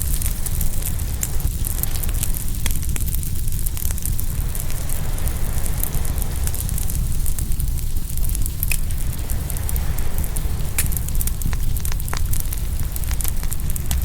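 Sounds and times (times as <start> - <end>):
fire pop: 0.0 - 14.0
wood fire crackling: 0.0 - 14.0.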